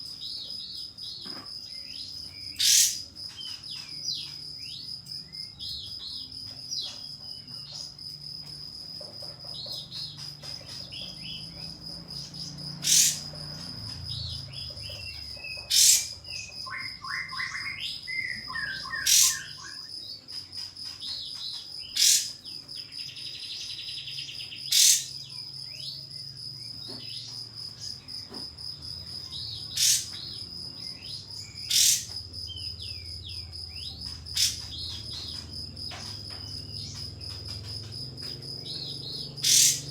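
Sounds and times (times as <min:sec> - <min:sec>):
insect trill: 0:00.0 - 0:39.9
bulbul chirping: 0:09.8 - 0:20.0, 0:21.4 - 0:22.6, 0:23.8 - 0:25.3, 0:29.2 - 0:39.9.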